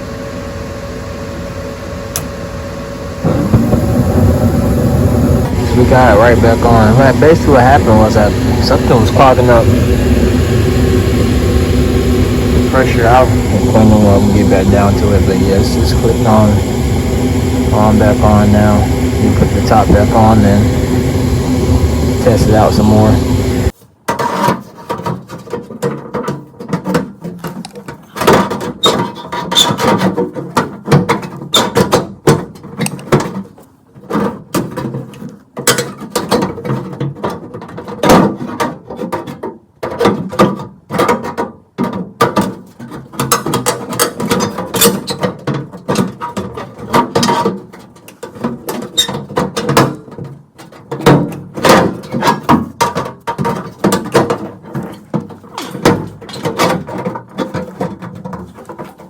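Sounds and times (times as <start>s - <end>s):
metal parts clanking and rattling: 24.1s - 59.0s.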